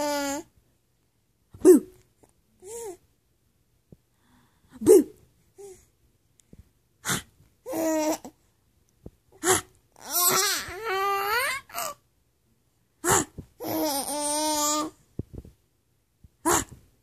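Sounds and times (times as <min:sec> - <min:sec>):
woman making silly vocal noises: 0:01.6 - 0:02.0, 0:04.7 - 0:05.2, 0:09.4 - 0:09.8, 0:13.0 - 0:13.4, 0:16.4 - 0:16.8
baby babbling laughter: 0:10.0 - 0:12.0, 0:13.6 - 0:15.0.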